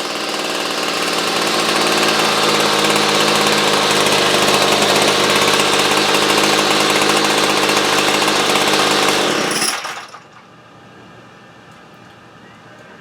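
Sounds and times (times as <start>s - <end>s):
small two-stroke engine running: 0.0s - 10.3s.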